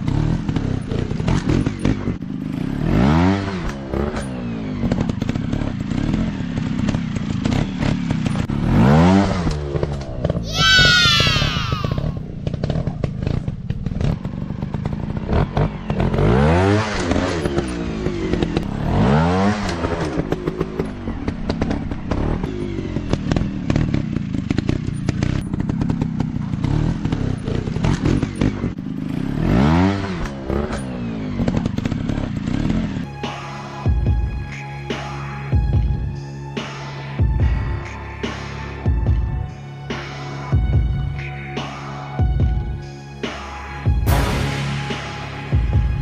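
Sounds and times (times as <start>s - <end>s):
dirt bike engines revving: 0.0s - 33.8s.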